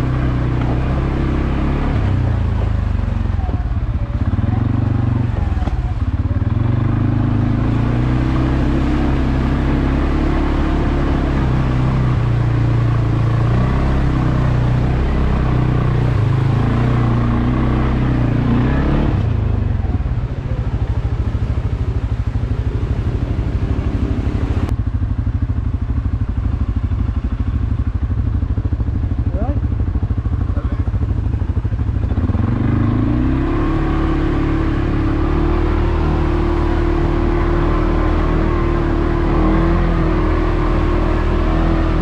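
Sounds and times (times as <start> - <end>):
atv engine running: 0.0 - 42.0.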